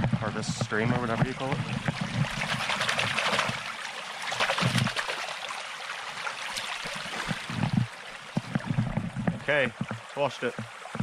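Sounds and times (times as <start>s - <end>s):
water splashing over hands: 1.0s - 5.6s.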